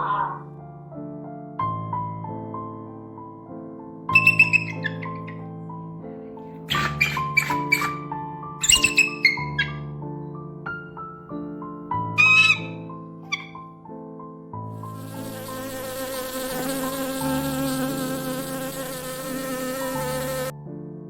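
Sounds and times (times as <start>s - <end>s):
soft piano music: 0.0s - 21.0s
insect buzzing: 4.2s - 5.3s, 14.8s - 20.5s.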